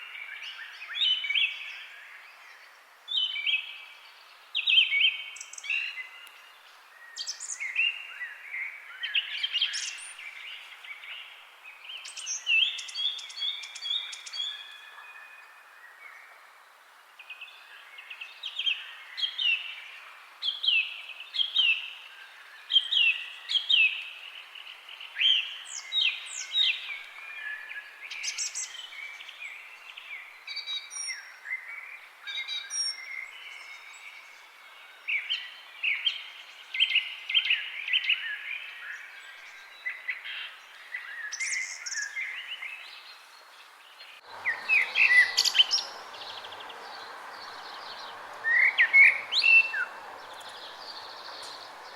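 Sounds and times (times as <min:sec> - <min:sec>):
songbirds chirping: 0:00.0 - 0:51.9
steady rushing hiss: 0:44.3 - 0:51.9.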